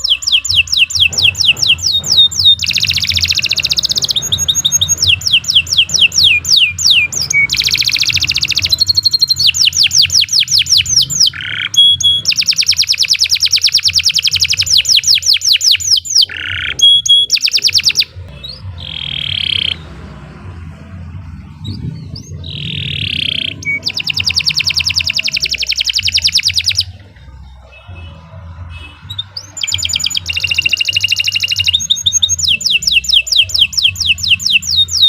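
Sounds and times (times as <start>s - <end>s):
canary singing: 0.0s - 35.0s
low steady hum: 18.0s - 26.0s.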